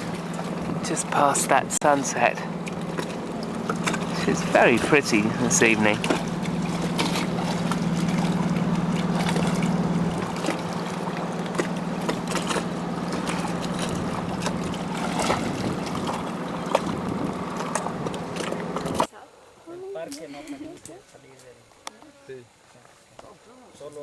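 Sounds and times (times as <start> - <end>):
surf breaking: 0.0 - 19.1
low hum: 0.0 - 19.7.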